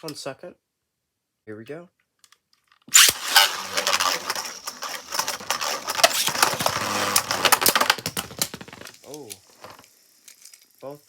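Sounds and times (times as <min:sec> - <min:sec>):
ripcord launcher rip: 0:02.9 - 0:09.0
spinning tops whirring: 0:02.9 - 0:09.0.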